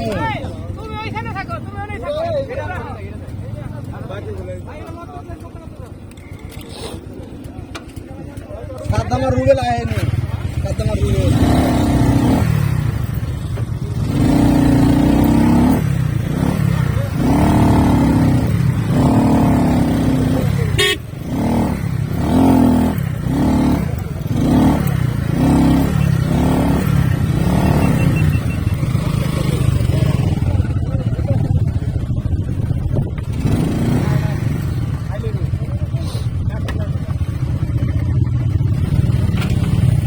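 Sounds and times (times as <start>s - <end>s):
motorcycles running: 0.0s - 40.0s
horn blasts: 20.6s - 21.4s
short horn beeps: 20.7s - 21.2s, 27.5s - 29.1s.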